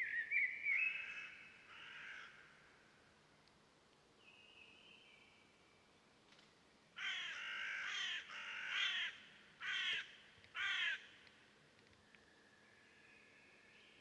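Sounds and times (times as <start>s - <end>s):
bird calling: 0.0s - 2.4s.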